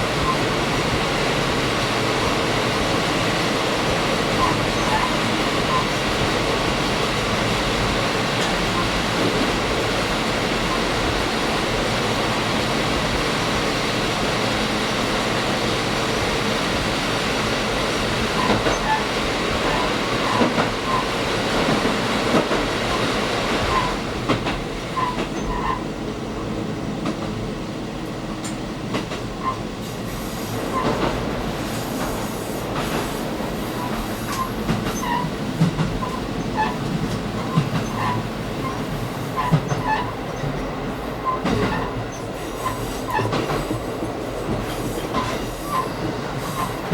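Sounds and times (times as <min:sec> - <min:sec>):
rail clicks: 0:00.0 - 0:46.9
train engine and wheels rumbling: 0:00.0 - 0:46.9
wheel squeaks: 0:36.0 - 0:40.4.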